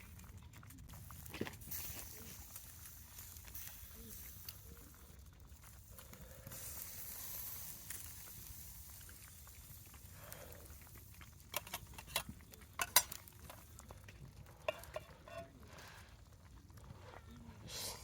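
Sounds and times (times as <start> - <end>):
faint sizzle: 0.0 - 18.0
utensil clicking on cookware: 11.5 - 13.2.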